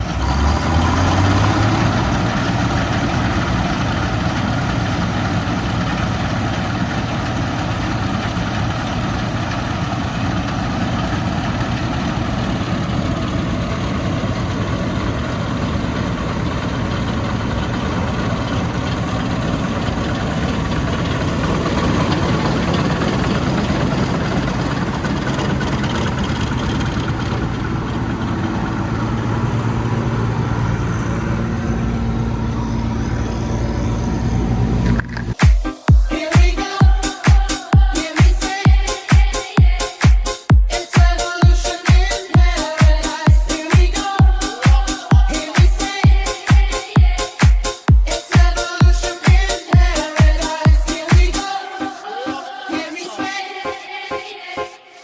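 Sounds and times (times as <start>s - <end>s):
heavy engine running: 0.0s - 54.8s.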